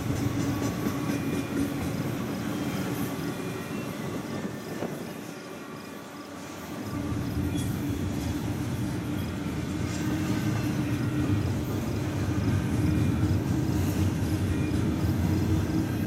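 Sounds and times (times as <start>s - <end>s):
train wheels rumbling: 0.0s - 5.5s.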